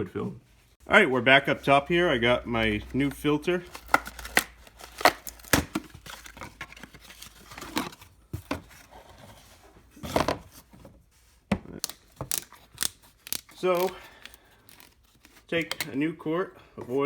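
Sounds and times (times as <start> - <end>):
packaging crinkling and tearing: 2.9 - 8.0, 11.8 - 15.9.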